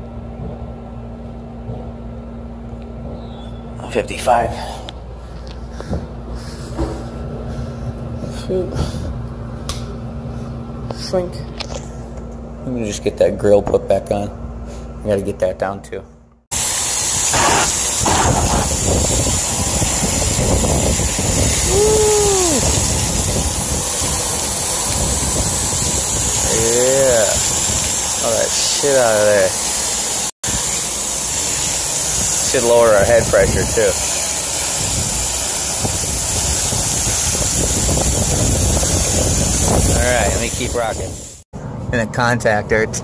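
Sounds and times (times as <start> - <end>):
air conditioner fan rushing: 0.0 - 15.4, 16.6 - 43.0
power washer jet spraying: 16.5 - 41.4.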